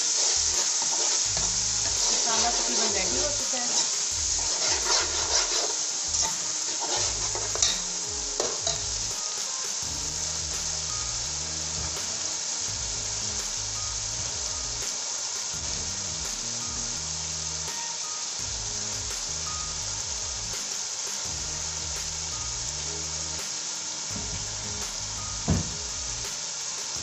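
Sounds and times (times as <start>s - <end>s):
masala sizzling in a pot: 0.0s - 27.0s
metal spoon scraping a pot: 0.2s - 8.9s.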